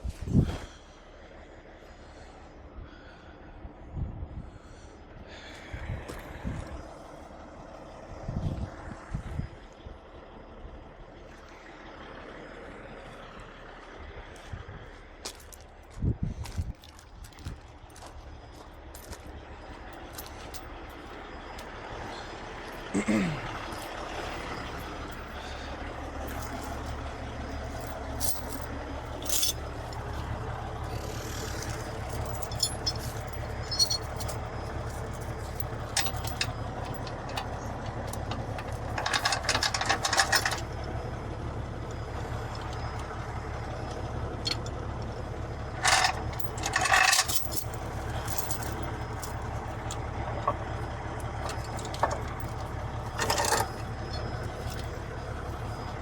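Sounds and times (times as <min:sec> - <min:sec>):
diesel truck engine idling: 0:00.0 - 0:56.0
chains clanking and rattling: 0:17.3 - 0:22.9, 0:23.5 - 0:41.1, 0:43.7 - 0:56.0.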